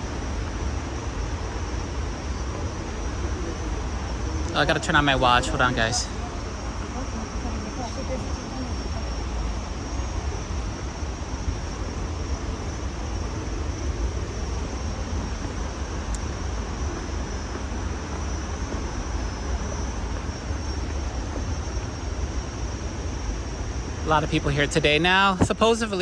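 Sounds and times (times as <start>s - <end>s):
waterfall roaring: 0.0s - 19.5s.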